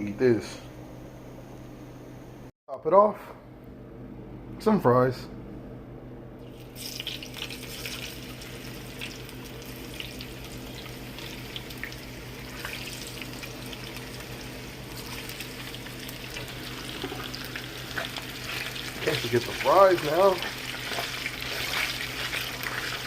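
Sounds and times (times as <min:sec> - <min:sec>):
fries sizzling in hot oil: 0:06.5 - 0:23.0
oil crackling: 0:06.5 - 0:23.0.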